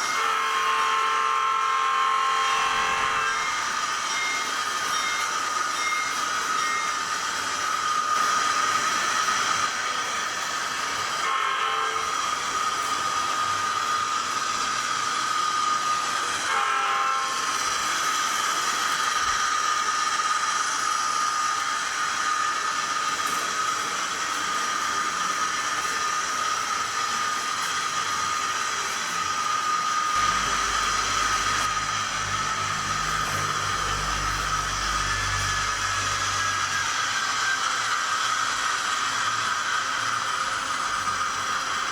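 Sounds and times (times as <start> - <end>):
hissy drone with high tone: 2.0 - 41.9.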